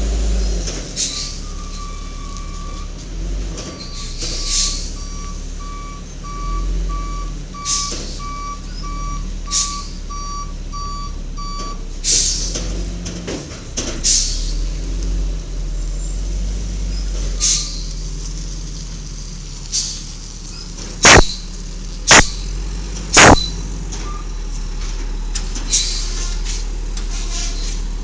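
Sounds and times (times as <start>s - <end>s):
low engine hum: 0.0s - 28.0s
air brake hisses: 1.0s - 1.6s, 4.0s - 5.0s, 7.6s - 8.4s, 9.5s - 10.0s, 12.0s - 12.6s, 14.0s - 14.8s, 17.4s - 18.0s, 19.7s - 20.1s, 25.7s - 27.9s
reversing alarm beeps: 1.4s - 2.9s, 4.0s - 11.8s, 21.0s - 21.4s, 23.2s - 24.3s.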